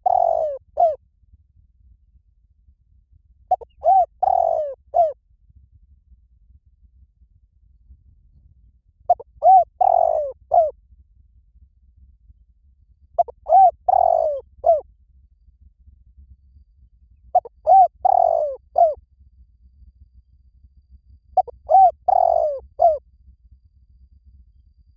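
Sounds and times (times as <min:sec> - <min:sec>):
dove cooing: 0:00.0 - 0:01.0, 0:03.5 - 0:05.2, 0:09.1 - 0:10.7, 0:13.2 - 0:14.8, 0:17.4 - 0:19.0, 0:21.4 - 0:23.0.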